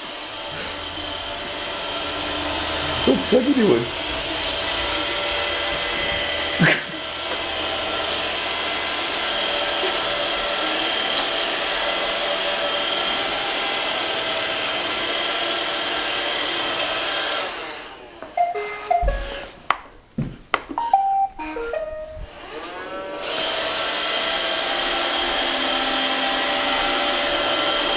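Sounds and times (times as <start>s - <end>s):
robot vacuum whirring: 0.0s - 19.4s
short electronic tones: 18.4s - 19.5s, 20.8s - 22.3s.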